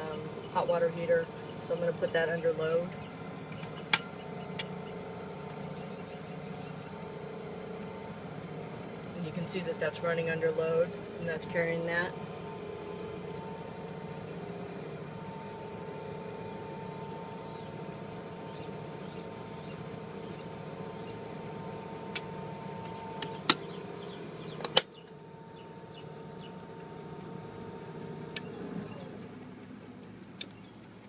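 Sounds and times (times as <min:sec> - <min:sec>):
generator humming with whine: 0:00.0 - 0:31.0
sharp clicks: 0:24.6 - 0:25.2.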